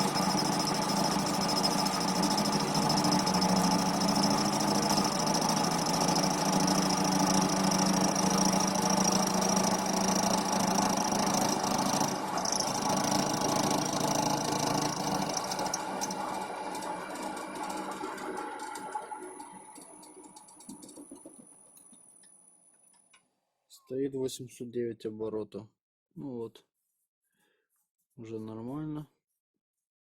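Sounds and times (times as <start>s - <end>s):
high cutting whine: 0.0s - 20.0s
lathe milling steel: 0.0s - 20.6s.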